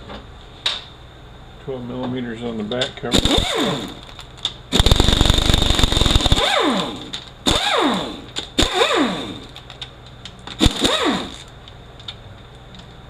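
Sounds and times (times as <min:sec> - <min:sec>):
pneumatic impact wrench bursts: 0:03.1 - 0:04.1, 0:04.7 - 0:09.6, 0:10.6 - 0:11.5
air motor whine winding down: 0:04.8 - 0:09.5, 0:10.7 - 0:11.5.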